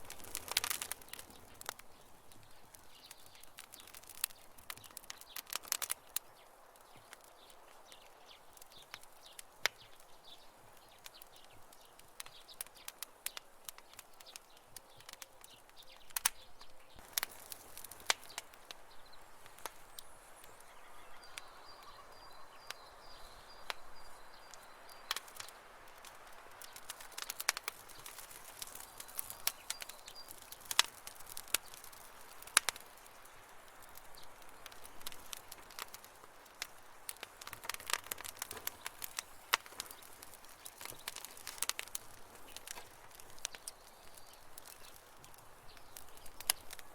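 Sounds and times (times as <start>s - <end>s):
wood fire crackling and popping: 0.0s - 46.9s
faint high-pitched chirping call: 20.0s - 25.0s.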